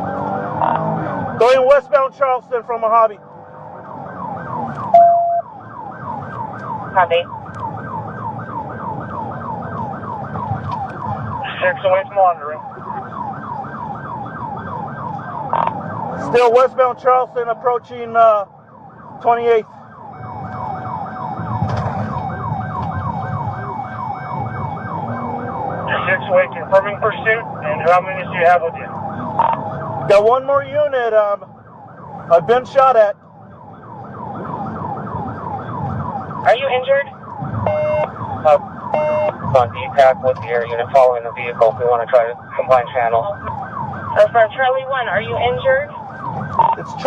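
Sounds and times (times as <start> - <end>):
police siren yelping: 0.0 - 47.0
radio beep: 4.8 - 5.5, 11.4 - 12.8, 25.9 - 29.6, 37.7 - 38.1, 39.0 - 43.3.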